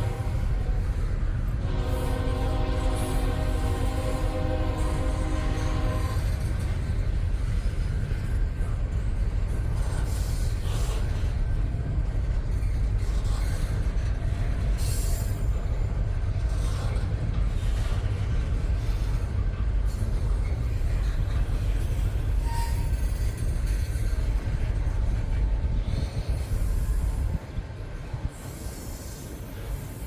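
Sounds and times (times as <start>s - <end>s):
freight train rumbling past: 0.0s - 30.0s
train wheel squeal: 0.0s - 30.0s
train hiss: 25.8s - 30.0s.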